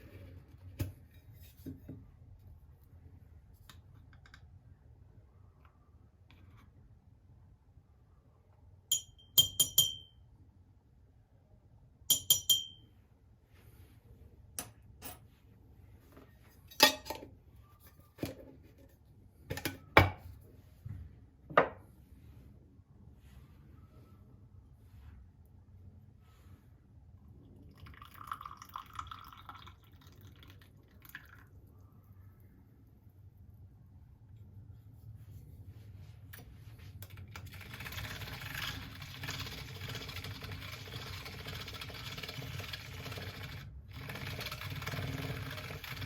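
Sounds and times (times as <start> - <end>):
glass clinking: 8.9 - 10.2, 12.1 - 12.9.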